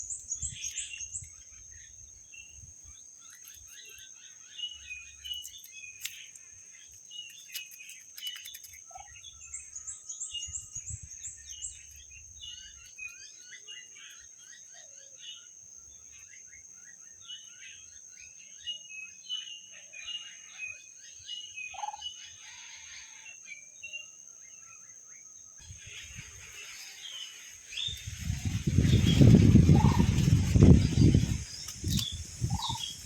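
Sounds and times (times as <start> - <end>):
birds chirping: 25.6 - 33.0.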